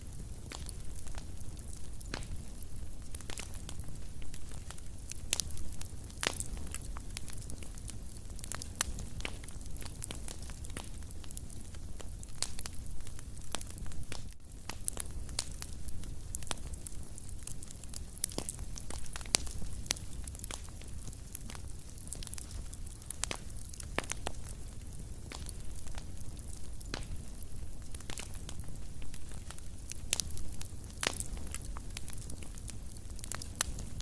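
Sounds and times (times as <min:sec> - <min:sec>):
fireplace fire crackling and popping: 0:00.0 - 0:34.0.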